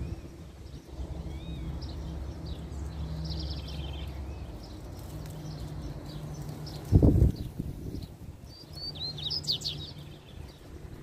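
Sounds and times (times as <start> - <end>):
faint bird chirps and trill: 0.0 - 10.7
low background rumble: 0.0 - 11.0.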